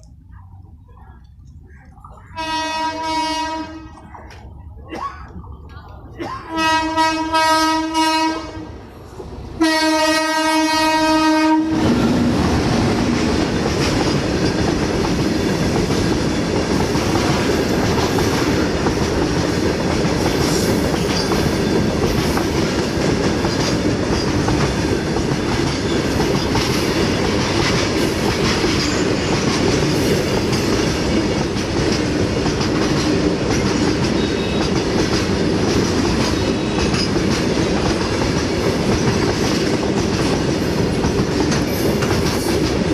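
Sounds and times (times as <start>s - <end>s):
train wagons rolling on rails: 0.0s - 42.9s
locomotive horn: 2.3s - 4.0s, 6.5s - 8.8s, 9.6s - 11.9s.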